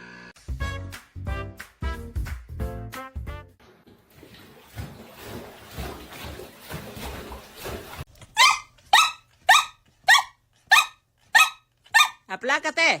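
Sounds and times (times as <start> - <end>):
dog barking: 8.4 - 12.2.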